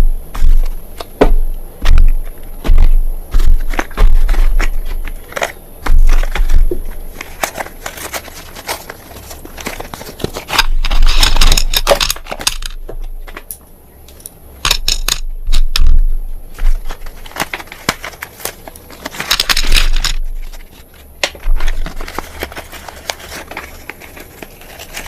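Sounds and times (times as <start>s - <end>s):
brittle material crunching: 0.3s - 13.6s, 14.7s - 25.0s.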